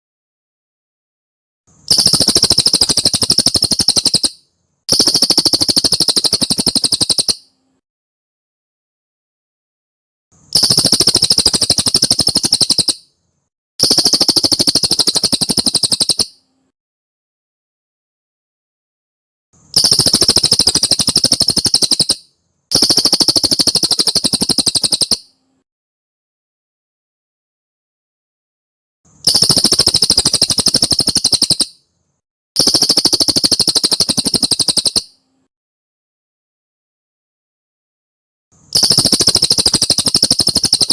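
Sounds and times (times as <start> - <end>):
rapid high bird chirps: 1.7 - 7.6, 10.4 - 13.2, 13.8 - 16.5, 19.6 - 25.4, 29.1 - 31.9, 32.6 - 35.3, 38.6 - 40.9
songbird buzzy trills: 1.8 - 7.6, 10.5 - 13.1, 13.8 - 16.5, 19.7 - 25.4, 29.2 - 31.9, 32.6 - 35.2, 38.7 - 40.9.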